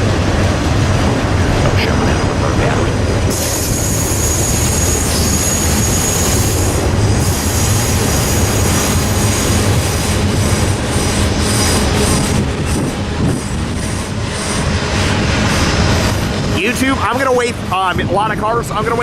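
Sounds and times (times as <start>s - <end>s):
freight cars rumbling on rail: 0.0s - 19.0s
high-pitched wheel squeal: 3.3s - 9.6s.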